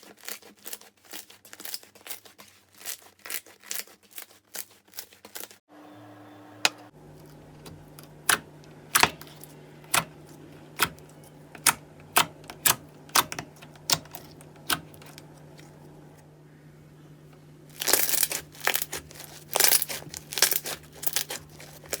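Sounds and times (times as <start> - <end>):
slime popping and crackling: 17.8 - 22.0.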